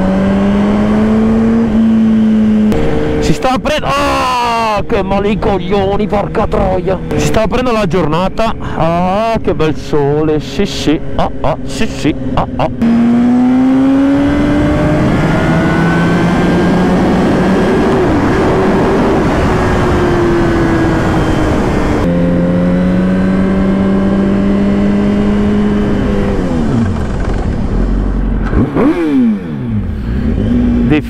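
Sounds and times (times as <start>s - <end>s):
motorcycle engine accelerating: 0.0s - 31.0s
wind noise: 13.7s - 29.1s.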